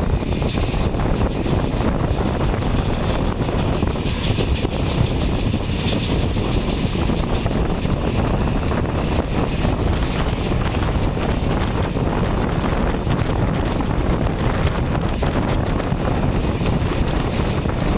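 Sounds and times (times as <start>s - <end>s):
train rumbling on rails: 0.0s - 17.9s
wind buffeting microphone: 0.0s - 17.9s.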